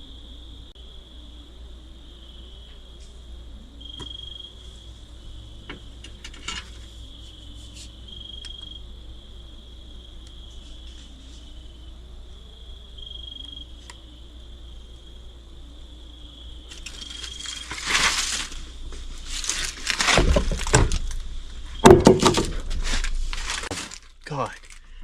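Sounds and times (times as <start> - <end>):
crickets chirring: 0.0 - 25.0.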